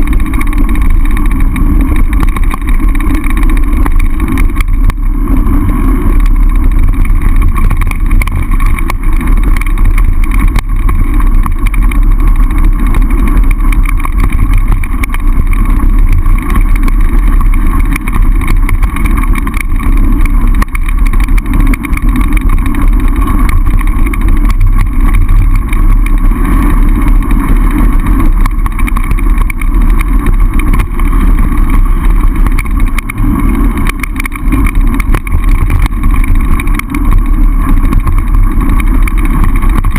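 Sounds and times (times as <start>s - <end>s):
bike jolts on rough ground: 0.0s - 39.9s
wind rushing over microphone: 0.0s - 39.9s.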